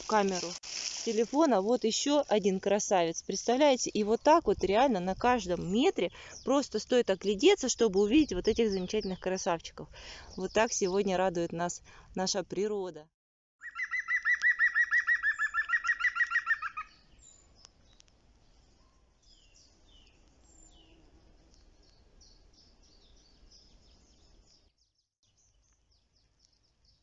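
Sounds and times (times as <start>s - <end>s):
bird singing a fast trill: 13.6s - 17.6s
faint high bird chirps: 13.6s - 27.0s.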